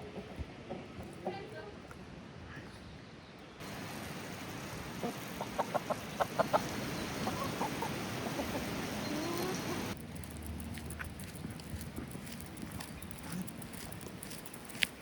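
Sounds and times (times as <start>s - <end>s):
flowing water: 3.6s - 15.0s
chicken clucking: 5.0s - 10.0s.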